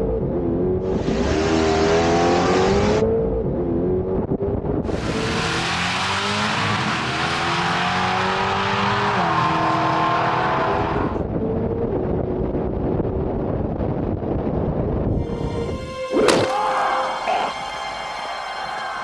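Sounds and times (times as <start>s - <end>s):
race car engine at full throttle: 0.0s - 13.3s.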